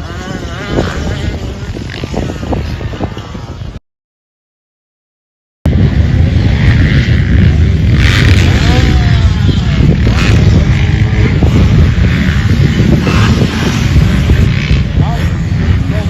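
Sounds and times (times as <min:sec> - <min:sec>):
dirt bike engine rumble: 0:00.0 - 0:03.8, 0:05.7 - 0:16.0.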